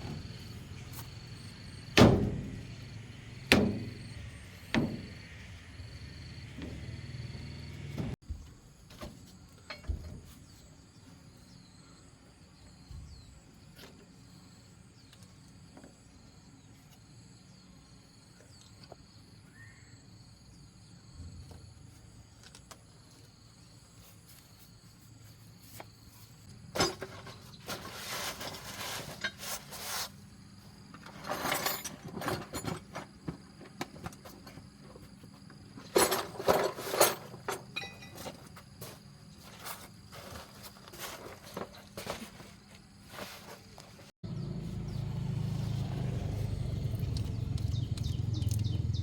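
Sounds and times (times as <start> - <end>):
scraping or rubbing: 27.3 - 30.2.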